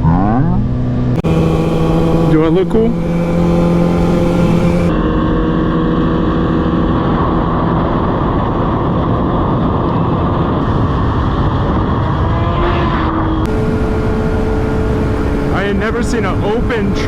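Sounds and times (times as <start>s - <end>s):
motorcycle engine cruising: 0.0s - 5.0s, 13.5s - 17.0s
wind rush: 13.0s - 17.0s.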